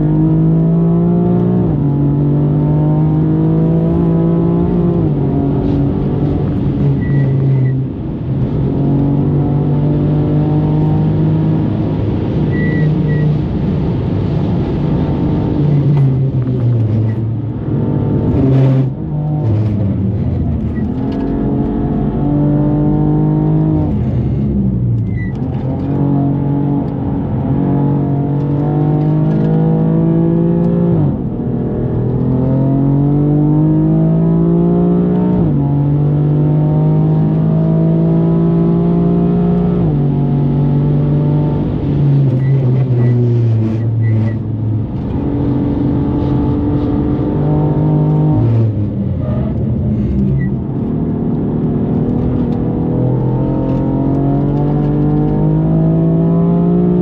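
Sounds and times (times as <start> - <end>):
car engine at full throttle: 0.0 - 57.0.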